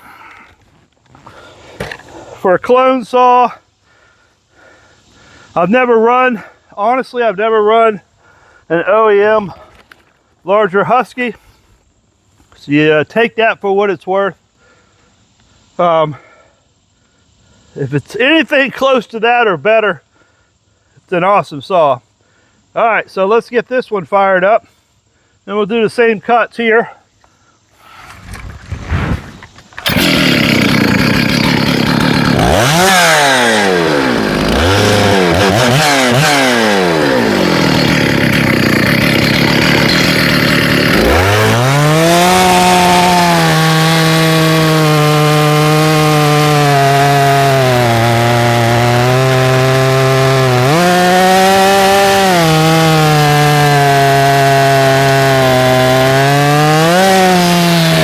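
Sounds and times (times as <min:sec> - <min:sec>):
chainsaw revving and cutting wood: 0:29.8 - 0:58.0.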